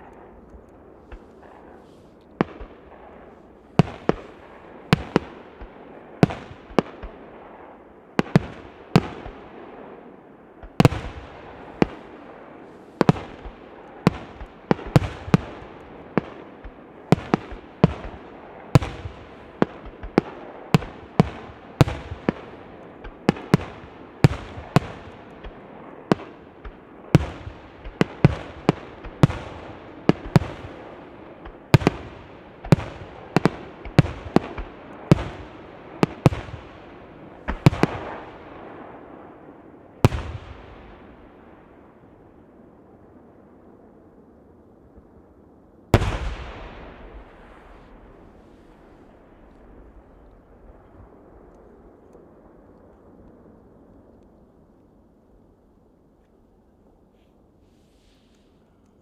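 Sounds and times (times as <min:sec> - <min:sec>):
fireworks bursting: 0:01.0 - 0:07.2, 0:10.7 - 0:39.0, 0:46.0 - 0:50.7.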